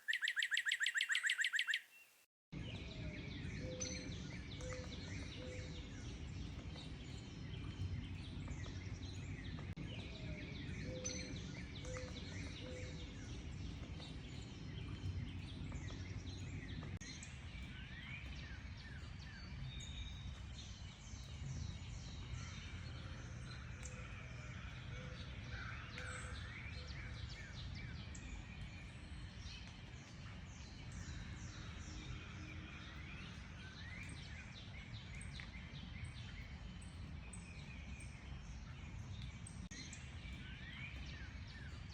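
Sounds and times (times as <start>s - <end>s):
small birds chirping: 0.0s - 2.3s.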